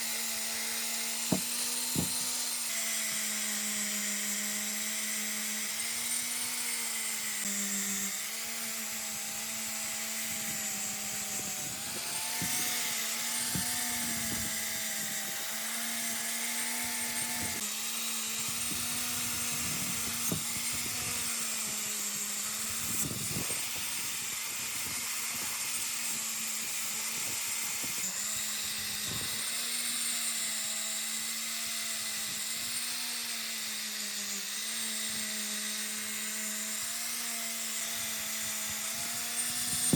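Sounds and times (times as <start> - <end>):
electric power tool motor: 0.0 - 39.9
workpiece scrapes and knocks: 1.3 - 2.4, 38.7 - 39.9.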